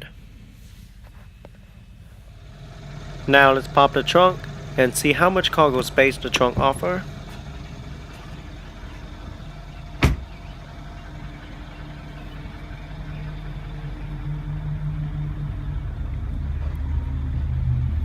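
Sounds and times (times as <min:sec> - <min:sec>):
car engine idling: 0:01.6 - 0:18.0.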